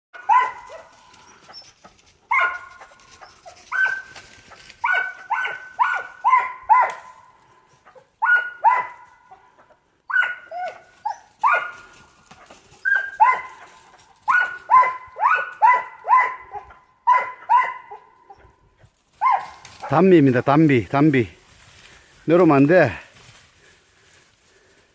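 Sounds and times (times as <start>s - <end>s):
animal barking: 0.2s - 18.6s, 19.2s - 20.0s.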